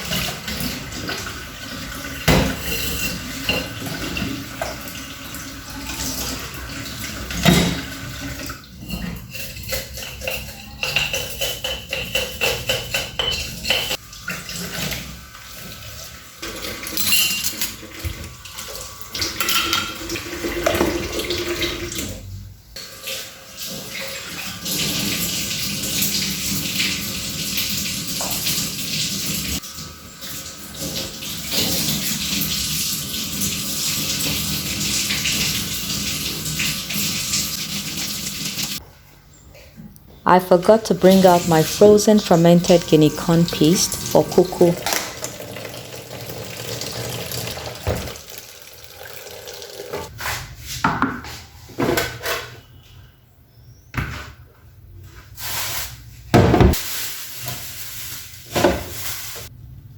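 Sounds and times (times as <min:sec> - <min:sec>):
tap water running into sink: 0:00.0 - 0:08.6, 0:12.0 - 0:22.1, 0:22.8 - 0:38.8, 0:42.8 - 0:50.1
kitchenware knocking and clinking: 0:02.2 - 0:04.7, 0:07.3 - 0:08.0, 0:08.8 - 0:14.0, 0:16.9 - 0:17.8.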